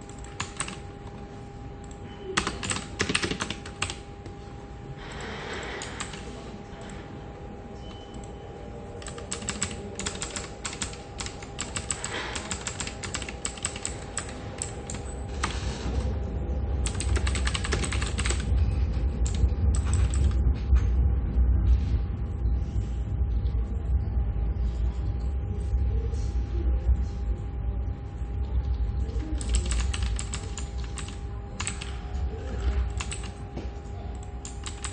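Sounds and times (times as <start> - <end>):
typing on computer keyboard: 0.0 - 0.8, 1.8 - 4.0, 5.2 - 6.3, 9.0 - 15.7, 16.8 - 18.6, 19.2 - 20.4, 29.4 - 32.0, 32.6 - 33.4, 34.4 - 34.9
faint office hum: 0.0 - 34.9
low rumble: 18.4 - 30.1.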